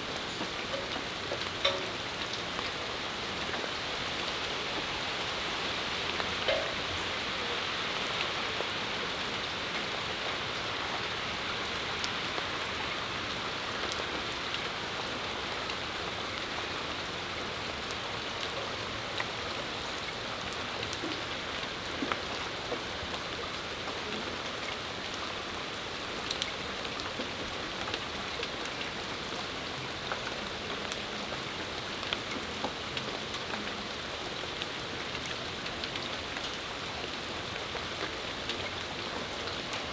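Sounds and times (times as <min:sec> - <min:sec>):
rain falling on a patio: 0:00.0 - 0:39.9
sharp drips and taps: 0:00.3 - 0:02.7, 0:06.2 - 0:06.9.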